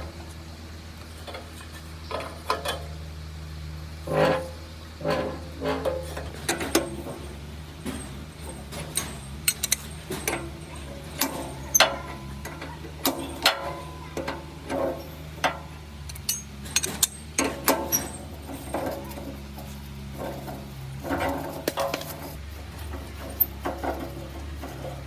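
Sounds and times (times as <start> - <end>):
metal tools clinking: 5.0 - 25.0.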